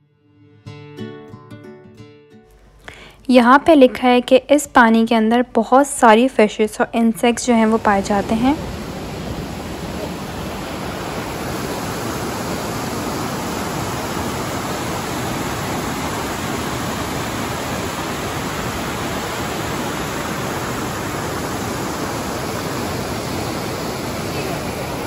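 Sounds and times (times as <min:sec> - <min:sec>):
river rushing over boulders: 0:07.7 - 0:25.0.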